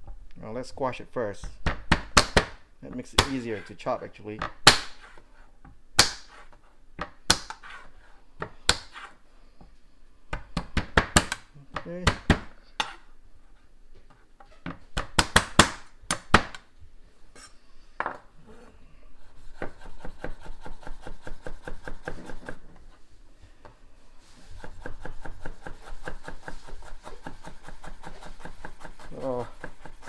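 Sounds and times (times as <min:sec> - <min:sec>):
knife chopping on cutting board: 0:01.4 - 0:03.7, 0:04.4 - 0:09.2, 0:10.3 - 0:13.1, 0:14.7 - 0:16.6, 0:19.3 - 0:22.8, 0:24.4 - 0:30.0
knife knocking on board: 0:01.5 - 0:03.7, 0:10.3 - 0:13.0.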